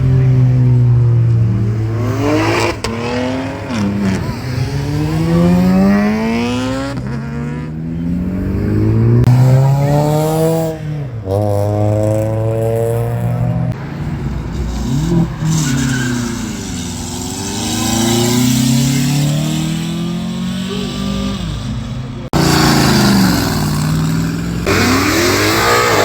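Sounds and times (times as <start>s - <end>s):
car engine revving hard: 14.9s - 26.0s.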